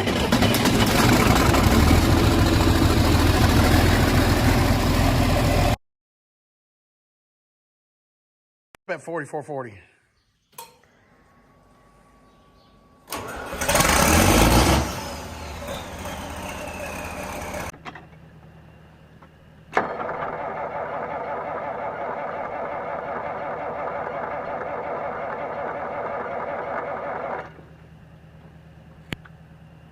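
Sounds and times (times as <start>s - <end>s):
diesel engine cranking and starting: 0.0s - 5.8s, 13.1s - 17.8s, 19.7s - 27.8s
diesel engine running steadily: 0.0s - 5.8s, 13.2s - 29.9s.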